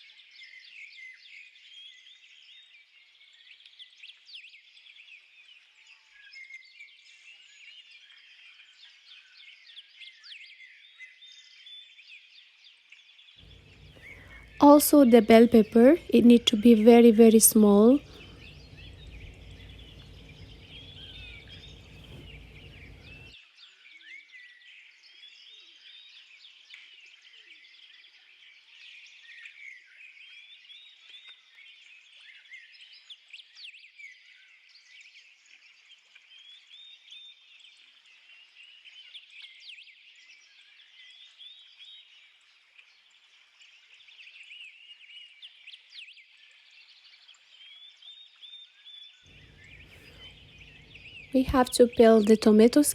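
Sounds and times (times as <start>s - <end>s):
small birds chirping: 13.4s - 23.4s, 43.0s - 52.9s.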